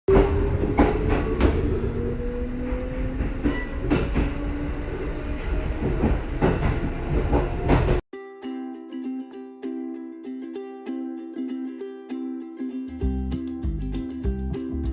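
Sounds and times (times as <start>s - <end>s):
train motor whine rising: 0.1s - 8.0s.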